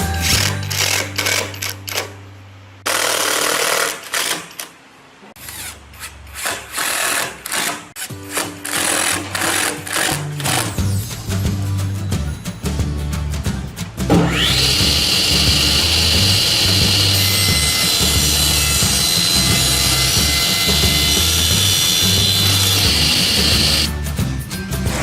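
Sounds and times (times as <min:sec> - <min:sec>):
music with driving percussive beat: 0:08.1 - 0:25.0.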